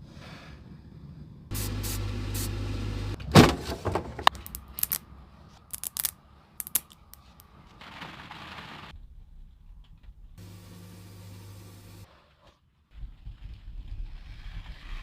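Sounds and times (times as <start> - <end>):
small electric motor humming: 10.4 - 12.0.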